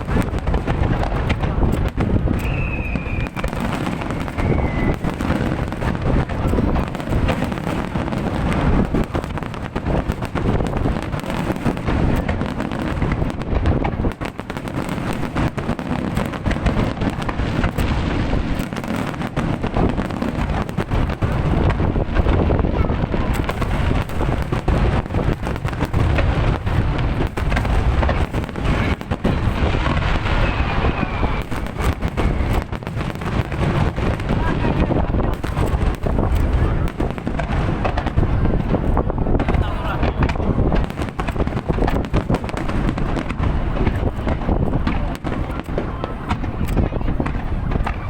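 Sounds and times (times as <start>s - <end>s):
fireworks bangs: 0.0s - 48.0s.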